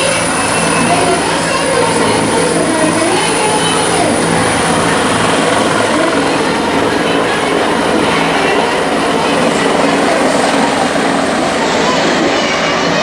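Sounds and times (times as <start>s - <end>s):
helicopter rotor and engine: 0.0s - 13.0s.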